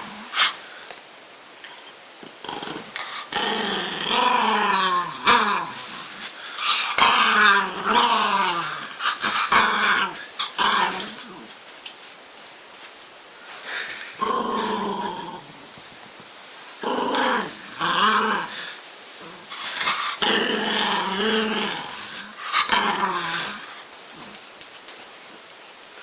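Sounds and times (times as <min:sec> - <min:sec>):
dog grumbling and growling: 0:02.2 - 0:11.6, 0:14.2 - 0:15.8, 0:16.8 - 0:24.4.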